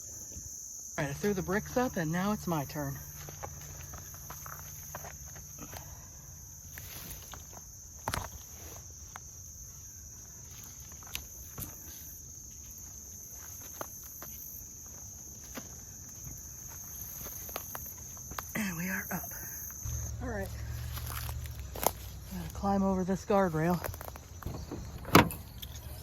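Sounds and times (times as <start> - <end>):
insects droning: 0.0 - 26.0
footsteps scrambling up bank: 19.8 - 26.0.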